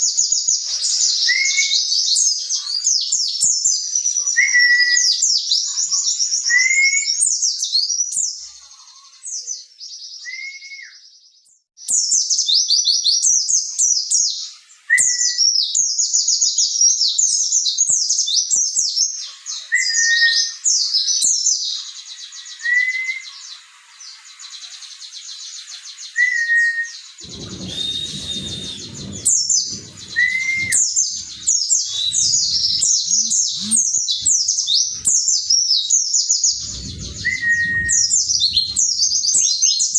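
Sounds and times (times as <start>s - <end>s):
bird twittering song: 0.0s - 39.9s
short low whistled notes: 26.4s - 35.1s, 36.5s - 39.6s
low rumbling noise: 27.2s - 35.5s, 36.4s - 39.9s.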